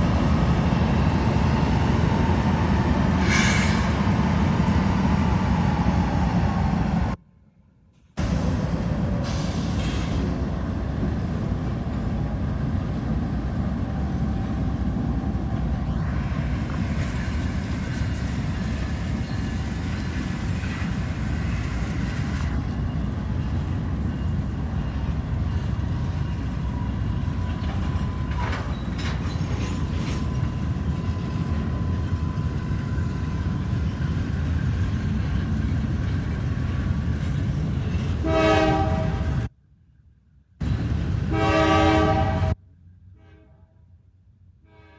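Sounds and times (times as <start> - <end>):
train rumbling along track: 0.0 - 7.2, 8.1 - 39.5, 40.6 - 43.2
train horn: 38.2 - 39.5, 41.3 - 43.9, 44.6 - 44.9.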